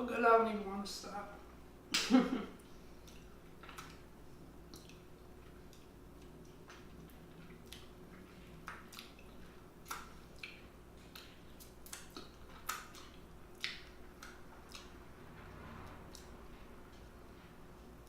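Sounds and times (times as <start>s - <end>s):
mouth clicks and lip smacks chewing: 3.0s - 15.0s.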